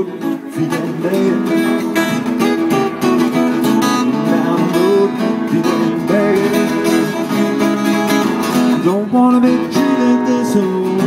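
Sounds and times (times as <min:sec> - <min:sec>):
acoustic guitar strumming: 0:00.0 - 0:11.0
melody line bending in pitch: 0:01.2 - 0:09.1.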